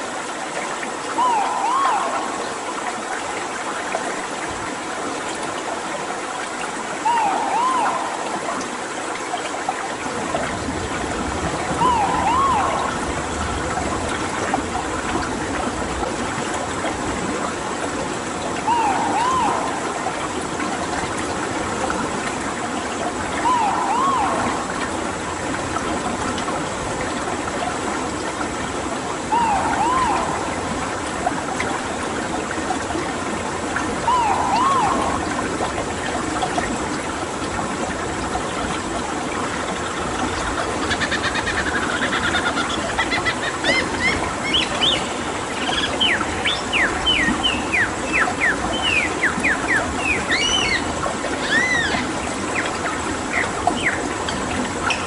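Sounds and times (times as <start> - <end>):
running water: 0.0 - 55.0
bird calls: 1.1 - 2.8, 7.0 - 8.6, 11.6 - 13.4, 18.6 - 20.7, 23.2 - 25.5, 29.2 - 31.1, 34.0 - 35.6, 40.8 - 54.1
high whistled bird notes: 1.2 - 2.6, 7.1 - 8.3, 11.8 - 13.1, 18.7 - 20.0, 23.4 - 25.0, 29.3 - 30.8, 34.1 - 35.4.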